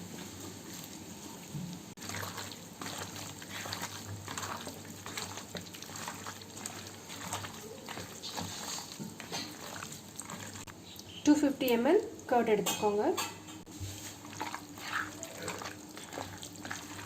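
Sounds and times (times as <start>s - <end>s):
wet stirring and squishing: 0.1s - 17.0s.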